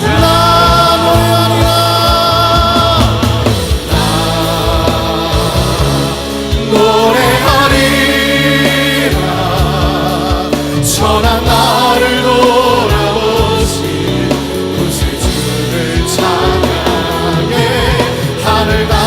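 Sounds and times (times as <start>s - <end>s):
band accompaniment: 0.0s - 19.0s
choir singing: 0.0s - 19.0s
steady drum beat: 0.0s - 19.0s.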